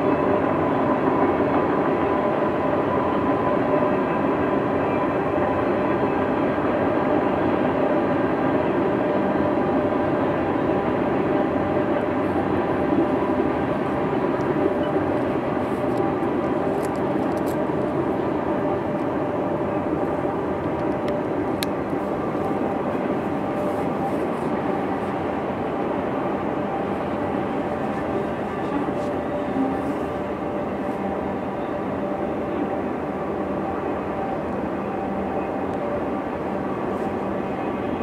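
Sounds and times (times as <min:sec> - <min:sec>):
distant freight train rolling past: 0:00.0 - 0:38.0.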